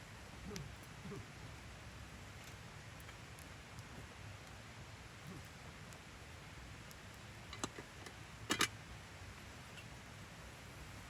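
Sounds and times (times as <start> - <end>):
wood fire crackling: 0.0 - 11.0
low voice-like sounds: 0.4 - 1.5.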